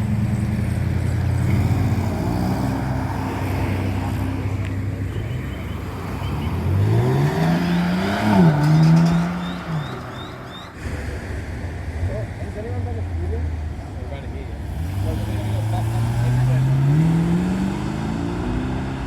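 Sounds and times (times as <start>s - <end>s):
car engine revving: 5.8s - 13.1s, 14.5s - 19.0s.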